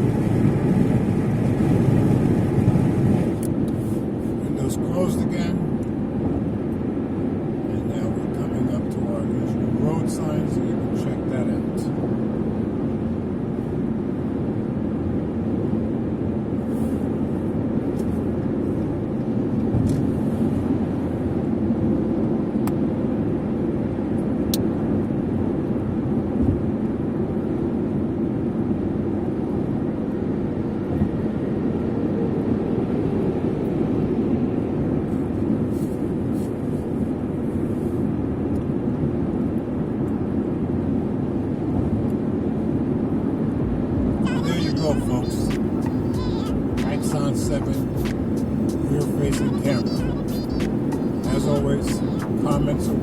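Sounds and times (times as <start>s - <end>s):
car cabin road and engine noise: 0.0s - 53.0s.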